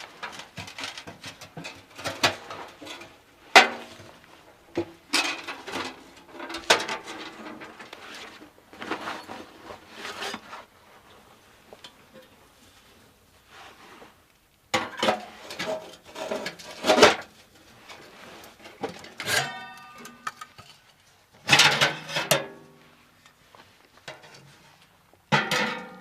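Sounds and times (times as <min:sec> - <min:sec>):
camping gear clattering: 0:00.0 - 0:12.4.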